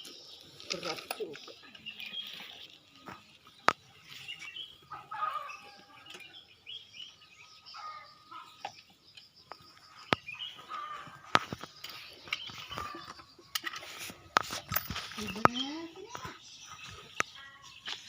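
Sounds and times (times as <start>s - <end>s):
birds chirping and calling: 0.0s - 18.0s
sharp clicks of parts handled: 11.3s - 15.5s.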